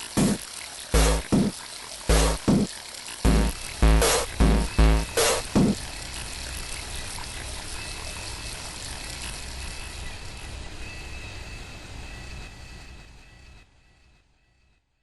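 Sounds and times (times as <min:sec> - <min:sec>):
running water rushing: 0:00.0 - 0:05.9.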